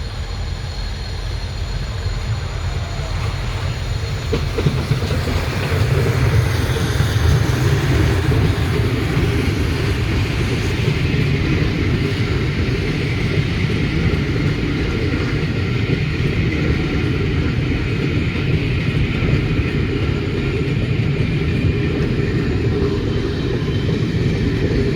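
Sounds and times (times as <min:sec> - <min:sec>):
train rumbling: 0:00.0 - 0:24.9.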